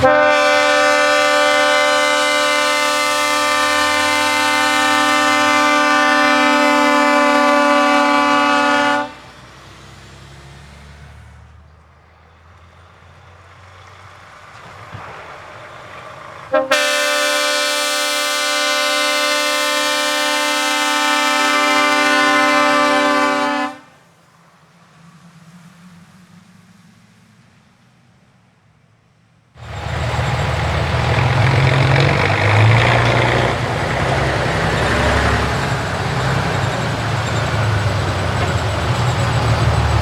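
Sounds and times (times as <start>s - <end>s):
truck air horn blast: 0.0s - 9.4s, 16.5s - 24.1s, 29.6s - 40.0s
low engine rumble: 0.0s - 17.0s, 29.6s - 40.0s.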